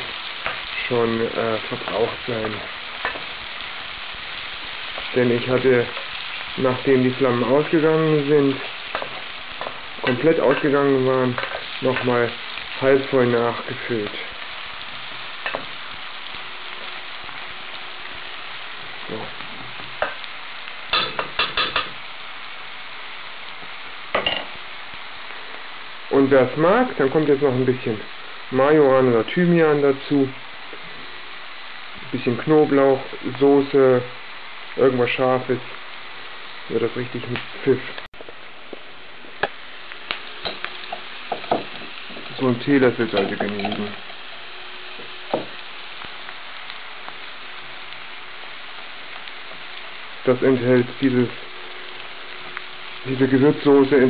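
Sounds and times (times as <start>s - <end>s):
vegetables sizzling in pot: 0.0s - 54.0s
utensil scraping and clinking pot: 43.1s - 44.3s.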